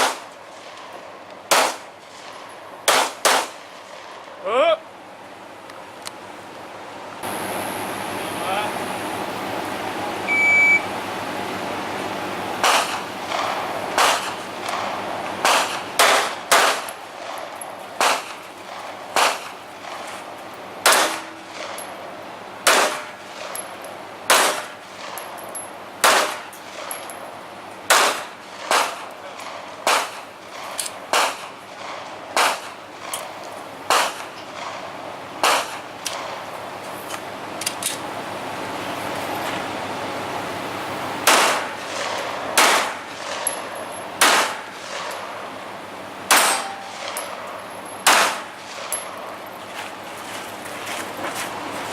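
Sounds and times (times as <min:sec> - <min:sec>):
gunshots hitting steel targets: 0:00.0 - 0:04.2, 0:12.6 - 0:20.2, 0:20.8 - 0:22.0, 0:22.6 - 0:25.4, 0:26.0 - 0:27.2, 0:27.9 - 0:36.4, 0:41.2 - 0:45.4, 0:46.3 - 0:49.3
short beep: 0:10.3 - 0:10.9.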